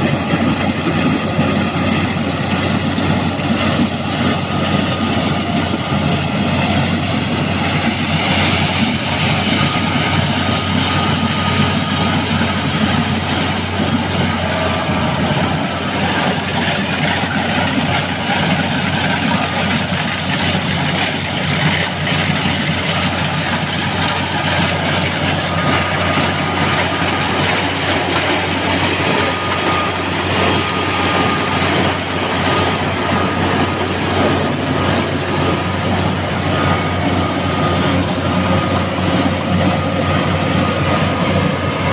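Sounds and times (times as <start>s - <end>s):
heavy engine humming: 0.0s - 41.9s.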